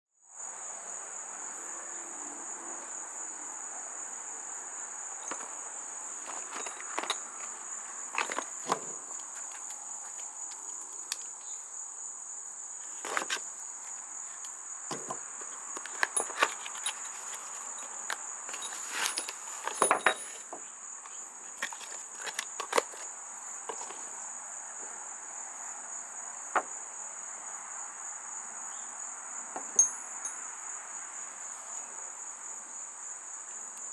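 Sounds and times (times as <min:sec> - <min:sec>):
cricket trill: 0:00.2 - 0:33.9
packaging being handled: 0:06.2 - 0:11.2, 0:12.8 - 0:13.4, 0:14.4 - 0:20.4, 0:21.5 - 0:23.1.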